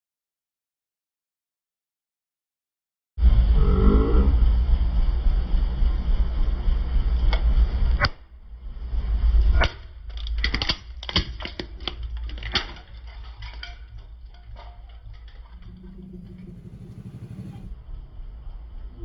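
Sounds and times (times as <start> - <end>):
car engine and tyre rumble: 15.5 - 17.8.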